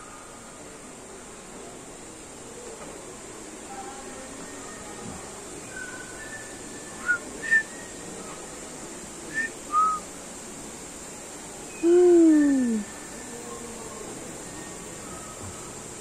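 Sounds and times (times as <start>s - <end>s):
low falling hooting call: 11.7s - 15.8s.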